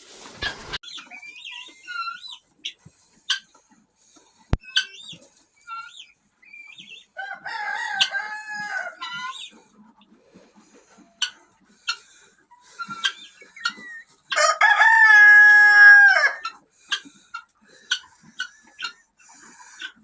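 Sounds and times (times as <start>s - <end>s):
rooster clucking: 0.2s - 3.6s, 7.1s - 20.0s
rooster crowing: 7.2s - 9.0s, 14.4s - 16.5s.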